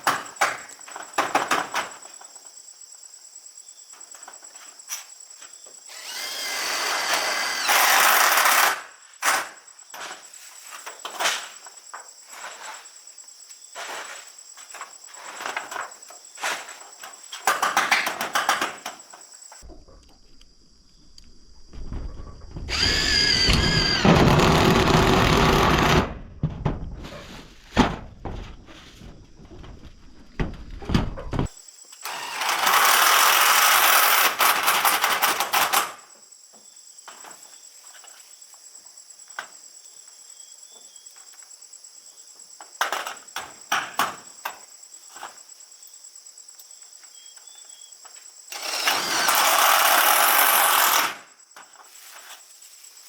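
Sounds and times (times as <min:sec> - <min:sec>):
handheld power tool running: 0:05.9 - 0:08.9, 0:22.7 - 0:26.1, 0:32.0 - 0:35.8, 0:48.5 - 0:51.3.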